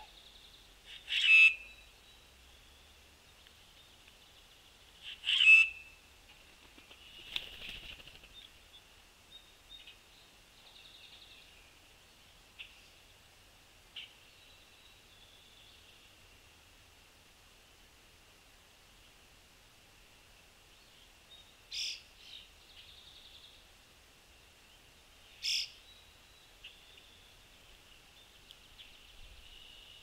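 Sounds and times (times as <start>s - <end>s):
wings fluttering: 6.3s - 8.6s.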